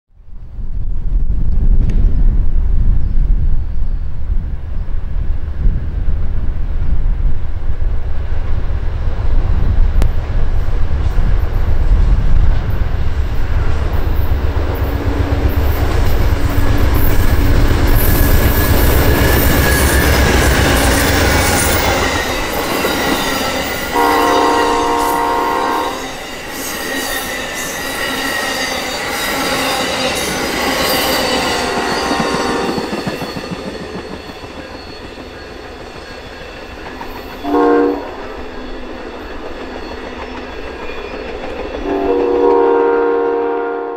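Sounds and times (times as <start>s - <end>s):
diesel locomotive engine rumble: 0.2s - 28.0s
train wheels clattering and squealing: 12.6s - 42.4s
train horn: 23.8s - 27.2s, 30.9s - 33.0s, 37.4s - 38.5s, 41.8s - 43.9s.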